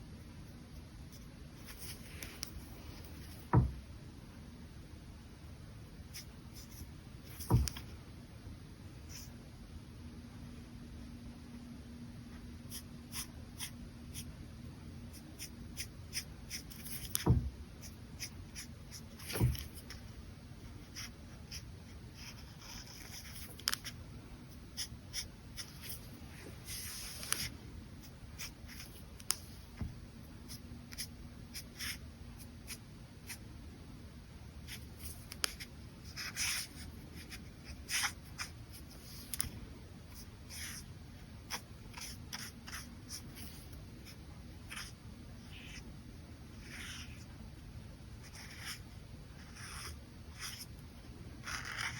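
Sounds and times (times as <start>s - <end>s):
brush pen scratching on paper: 20.8s - 24.0s, 34.7s - 39.4s, 40.1s - 45.8s, 46.5s - 47.3s, 48.2s - 50.8s, 51.4s - 51.9s.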